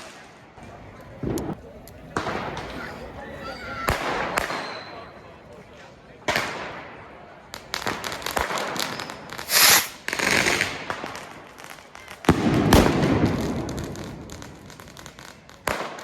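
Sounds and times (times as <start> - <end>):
firework bang with echo: 3.8 - 5.1, 12.2 - 16.0
small firework pops and crackles: 3.9 - 4.9, 6.2 - 16.0
rocket hiss: 8.9 - 10.8.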